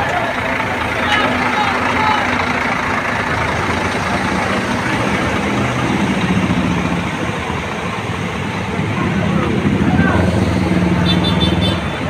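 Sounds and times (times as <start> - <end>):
diesel bus engine running: 0.0 - 12.0.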